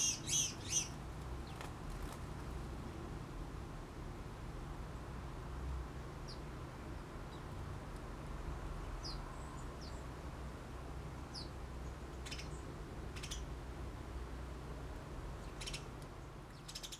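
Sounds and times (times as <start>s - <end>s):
small birds chirping: 0.0s - 1.7s, 6.2s - 7.6s, 8.9s - 10.1s, 11.3s - 13.5s, 15.4s - 16.9s.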